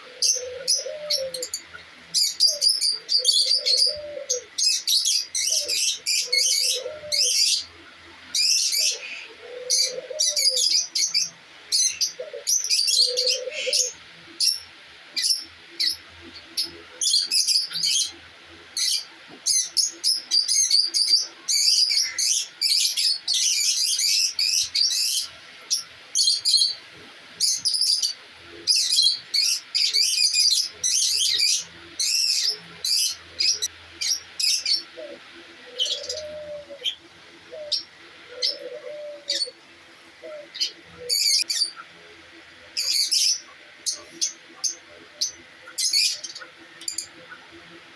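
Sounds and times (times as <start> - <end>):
low cooing call: 0.0 - 1.7, 2.4 - 4.6, 5.5 - 7.7, 8.8 - 10.8, 12.1 - 14.0, 34.9 - 39.6, 40.2 - 41.5
small birds chirping: 0.0 - 47.9.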